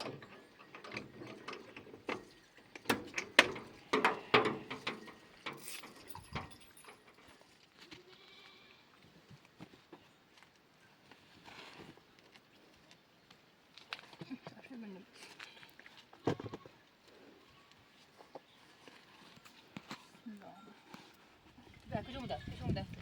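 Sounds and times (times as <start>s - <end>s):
sharp knocks and clatters: 0.0s - 7.3s
livestock bleating: 8.0s - 8.9s.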